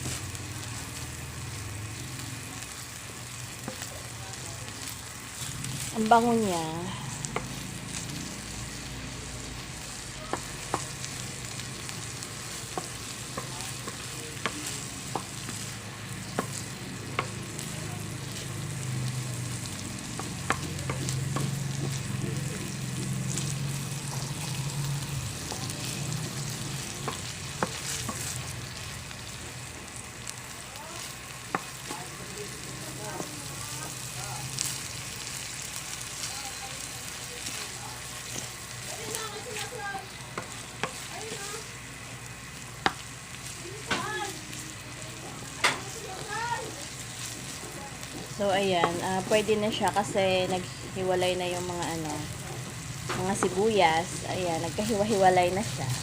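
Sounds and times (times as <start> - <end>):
onions sizzling in a pan: 0.0 - 56.0
stirring clicks against pan: 20.1 - 22.2.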